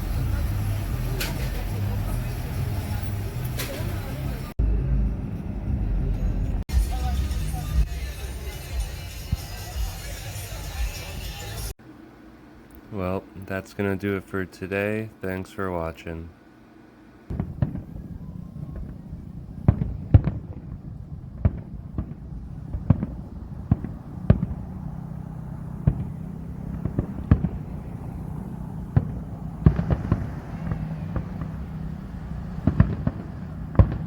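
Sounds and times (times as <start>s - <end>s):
fireworks bangs and pops: 0.0s - 4.4s, 6.8s - 11.7s, 17.3s - 34.0s
low rumble: 0.0s - 11.8s, 17.3s - 34.0s.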